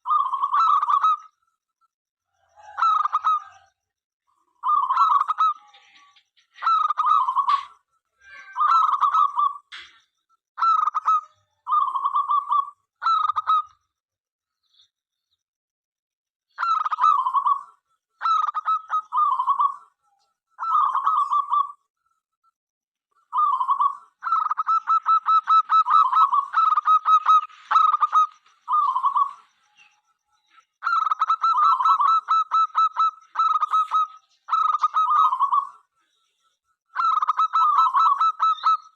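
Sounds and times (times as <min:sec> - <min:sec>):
dove cooing: 0:02.3 - 0:03.7, 0:04.5 - 0:07.8, 0:16.6 - 0:19.9, 0:20.6 - 0:21.8, 0:23.3 - 0:29.9, 0:30.8 - 0:35.8, 0:37.0 - 0:38.9.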